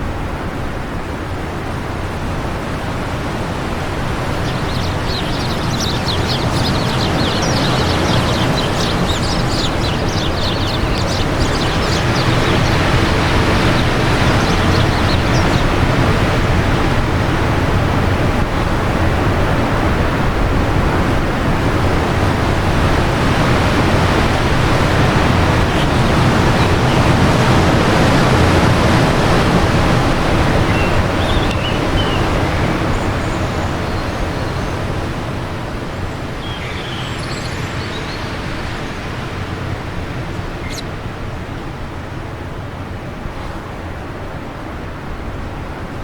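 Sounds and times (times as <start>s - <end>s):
wind gusting: 1.2s - 43.8s
faint bird chirps: 4.0s - 16.0s, 36.1s - 39.6s, 40.2s - 40.9s.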